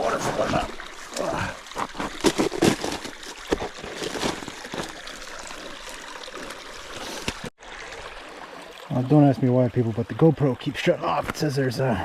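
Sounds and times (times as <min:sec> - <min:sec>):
footsteps splashing through creek: 0:00.0 - 0:08.8
stream water running: 0:00.0 - 0:12.0.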